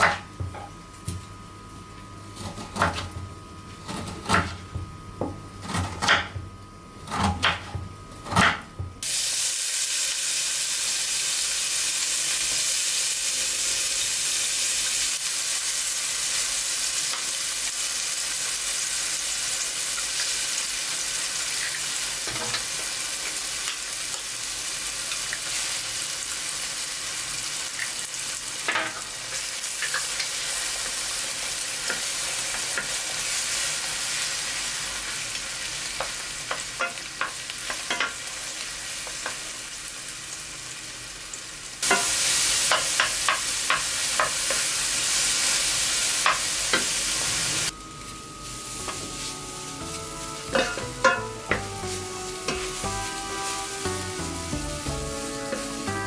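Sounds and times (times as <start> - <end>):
food sizzling in frying pan: 9.0 - 56.0
soft music: 47.7 - 56.0
utensil tapping pan: 49.8 - 56.0.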